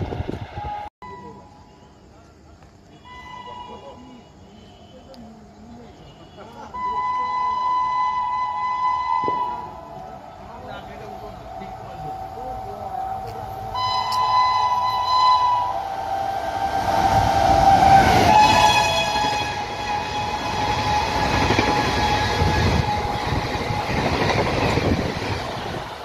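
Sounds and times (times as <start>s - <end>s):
train air horn: 3.0s - 4.1s, 6.8s - 10.2s, 13.7s - 23.4s.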